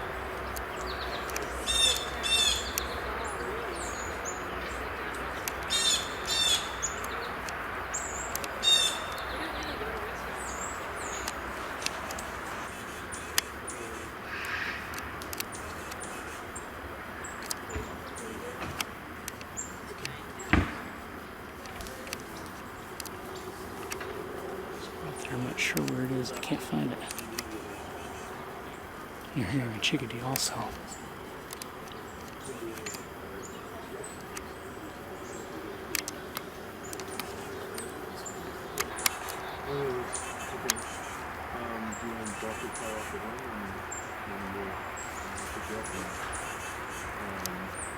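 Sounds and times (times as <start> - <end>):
background hiss: 0.0 - 47.9
outdoor background noise: 0.0 - 47.9
songbirds high thin calls: 0.0 - 47.9
sharp clicks: 0.5 - 2.9, 8.2 - 9.3, 11.1 - 12.3, 14.4 - 16.1, 17.4 - 17.9, 18.6 - 20.8, 21.5 - 24.2, 25.1 - 28.0, 29.2 - 33.2, 35.8 - 38.0, 38.6 - 39.6, 40.6 - 41.0
harsh bird call: 25.0 - 31.1.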